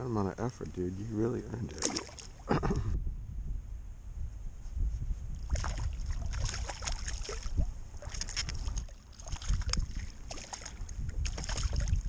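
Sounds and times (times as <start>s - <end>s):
water splashing around kayak: 1.6s - 2.5s, 5.4s - 12.0s.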